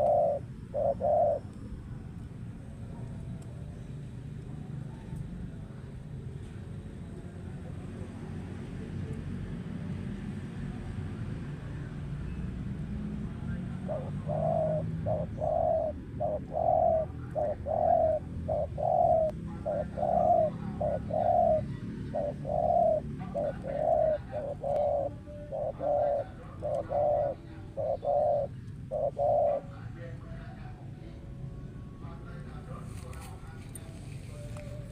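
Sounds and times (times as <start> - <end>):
dove cooing: 0.0 - 2.3, 13.2 - 30.1.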